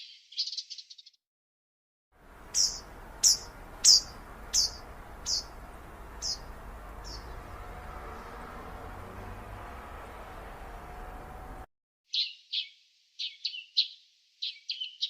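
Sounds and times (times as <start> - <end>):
bird chirping sharply: 2.4 - 8.5, 12.1 - 15.0.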